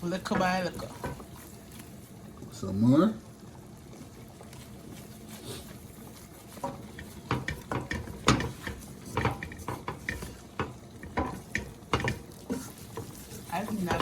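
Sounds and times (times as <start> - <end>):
utensil scraping a pan: 5.1 - 14.0.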